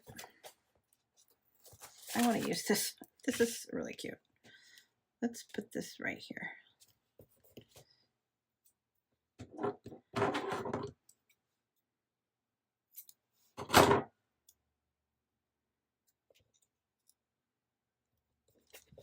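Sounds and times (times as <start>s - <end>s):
rustling and handling noise: 0.0s - 3.7s, 6.7s - 8.0s.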